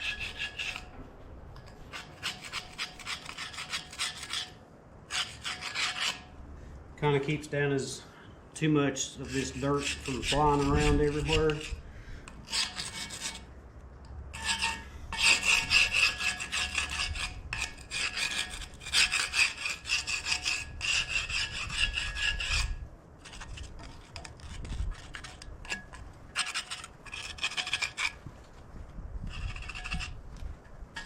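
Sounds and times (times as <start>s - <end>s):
blade scraping dirt off metal: 0.0s - 1.0s, 1.6s - 6.3s, 9.2s - 11.8s, 12.4s - 13.5s, 14.3s - 28.2s, 29.2s - 30.2s.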